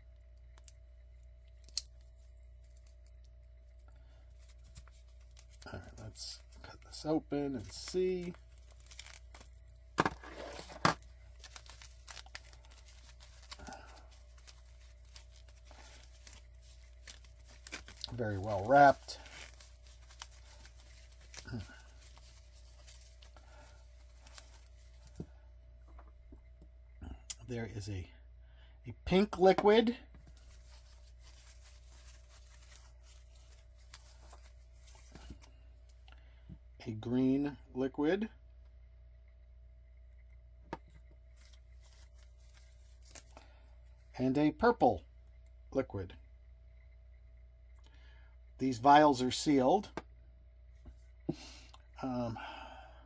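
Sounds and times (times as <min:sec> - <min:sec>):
steady low hum: 0:00.0 - 0:53.0
wrapping rustling: 0:00.3 - 0:25.5, 0:29.2 - 0:36.0, 0:41.3 - 0:44.1
packaging being torn open: 0:08.2 - 0:09.6, 0:10.5 - 0:23.4
light handling ticks: 0:11.0 - 0:26.4.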